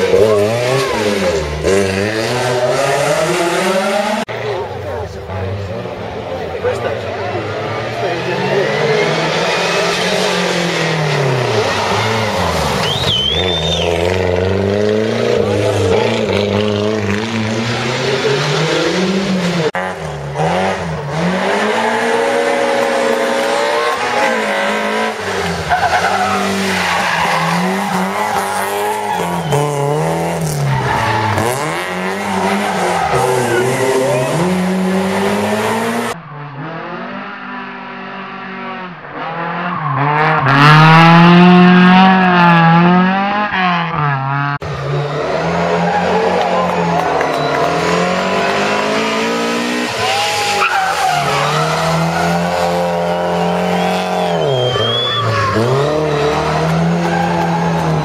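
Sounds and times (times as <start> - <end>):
rally car engines revving: 0.0 - 58.0
tyre squeal: 11.6 - 14.1, 50.0 - 58.0.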